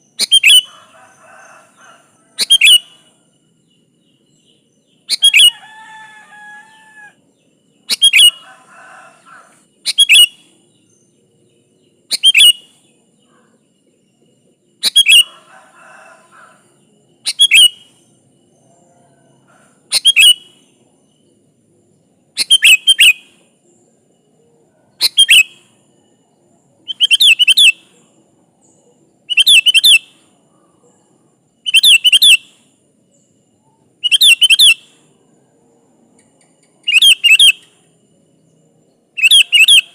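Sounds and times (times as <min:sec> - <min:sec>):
soft bird chatter: 0:00.0 - 0:39.9
bird whistled calls: 0:00.2 - 0:00.7, 0:02.4 - 0:03.0, 0:05.1 - 0:07.1, 0:07.9 - 0:08.4, 0:09.9 - 0:10.4, 0:12.1 - 0:12.7, 0:14.8 - 0:15.4, 0:17.3 - 0:17.8, 0:19.9 - 0:20.5, 0:22.4 - 0:23.3, 0:25.0 - 0:25.6, 0:26.9 - 0:27.8, 0:29.3 - 0:30.1, 0:31.6 - 0:32.5, 0:34.0 - 0:34.9, 0:36.8 - 0:37.7, 0:39.2 - 0:39.9.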